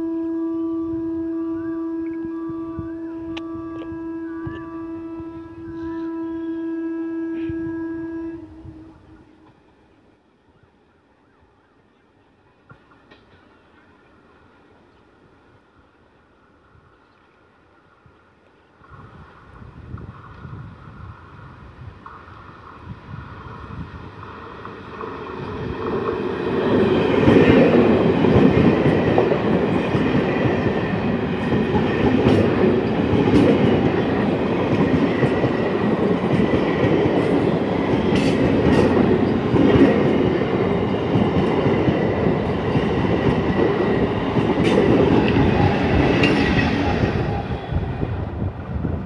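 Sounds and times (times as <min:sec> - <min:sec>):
train rushing rumble: 0:18.8 - 0:49.0.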